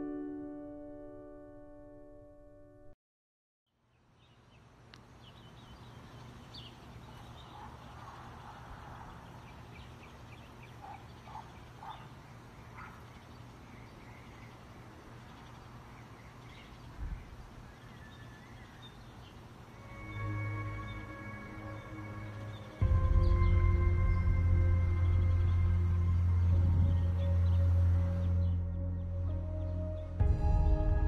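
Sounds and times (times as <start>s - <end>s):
birds chirping: 3.9s - 30.2s
steady low hum: 19.3s - 31.0s.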